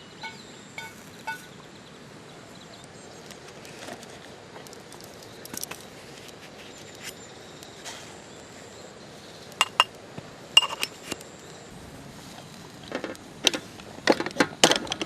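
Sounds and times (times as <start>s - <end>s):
metal cookware clinking: 0.2s - 1.5s, 9.6s - 9.9s.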